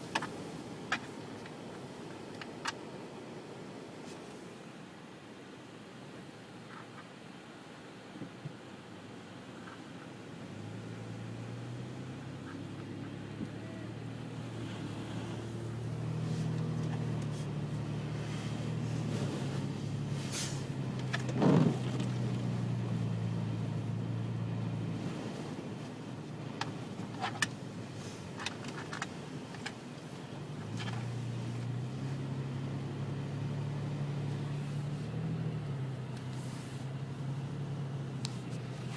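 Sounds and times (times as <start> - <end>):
constant hiss: 0.0 - 38.9
vehicle engine droning: 9.5 - 38.9.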